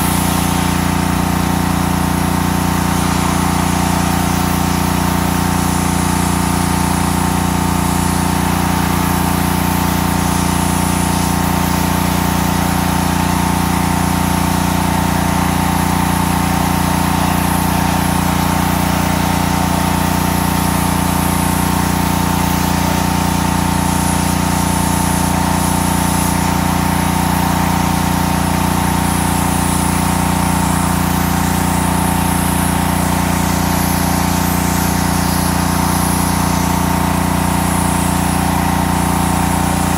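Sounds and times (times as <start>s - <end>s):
pressure washer engine running: 0.0s - 39.9s.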